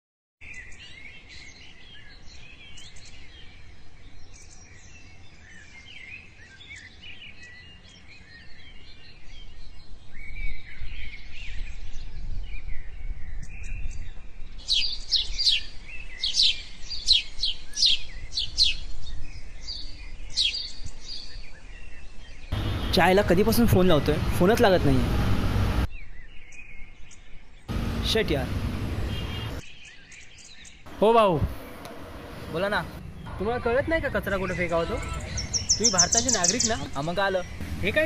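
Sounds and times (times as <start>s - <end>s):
birds chirping and singing: 0.4s - 38.0s
sharp repeated bird calls: 22.5s - 24.4s, 27.7s - 38.0s.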